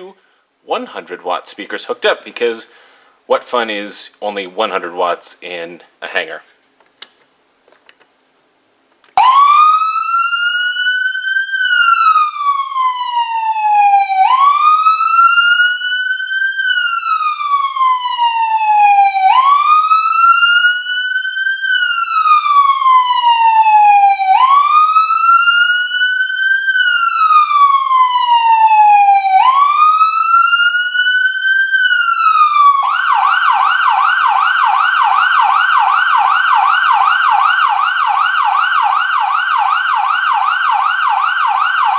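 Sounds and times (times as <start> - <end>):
electronic siren wailing and yelping: 9.2 - 41.9.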